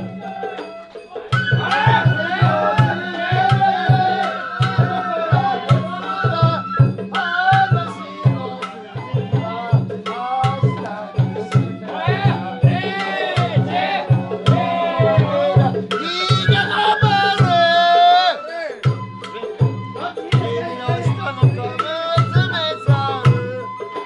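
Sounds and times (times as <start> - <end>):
bamboo flutes playing melody: 0.0 - 24.0
fast drum strokes: 1.3 - 18.0.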